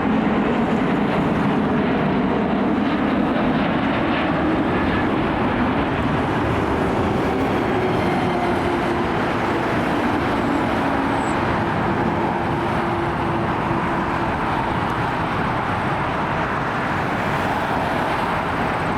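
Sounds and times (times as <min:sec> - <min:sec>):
jet airliner rumble: 0:00.0 - 0:18.9.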